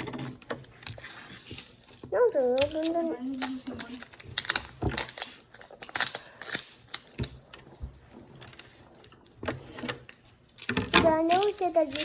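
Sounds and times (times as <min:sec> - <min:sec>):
toy pieces clicking on tabletop: 0:01.9 - 0:04.7.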